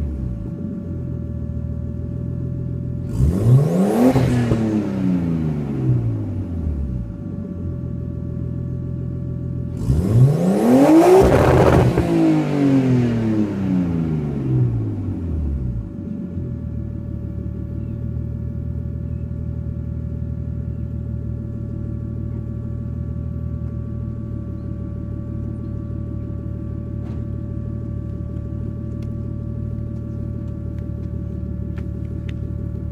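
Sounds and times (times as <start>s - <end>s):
car engine idling: 0.0s - 10.3s, 13.1s - 32.9s.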